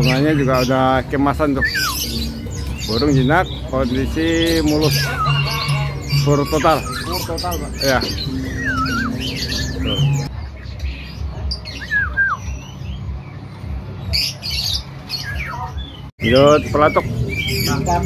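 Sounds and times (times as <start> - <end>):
bird chirps: 0.0 - 18.0
harsh bird squawk: 1.4 - 10.3
songbird whistled phrases: 1.5 - 3.7, 4.5 - 10.3, 11.6 - 13.0.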